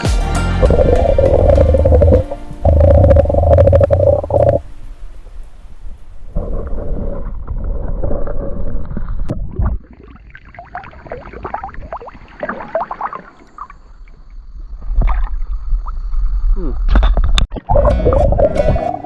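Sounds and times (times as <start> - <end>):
water gurgling and bubbling: 0.6 - 4.7, 6.2 - 16.4, 17.5 - 19.0
heavy low rumble: 0.6 - 9.3.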